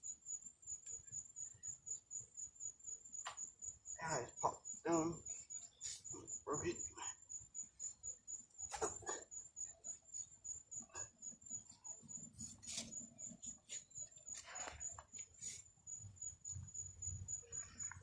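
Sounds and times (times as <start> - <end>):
pulsing high-pitched chirp: 0.0 - 18.0.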